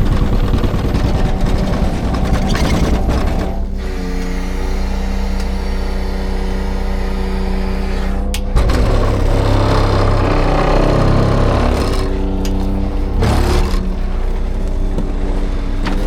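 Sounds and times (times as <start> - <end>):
engine knocking: 0.0 - 3.8, 8.5 - 16.0
diesel truck engine running: 0.0 - 16.0.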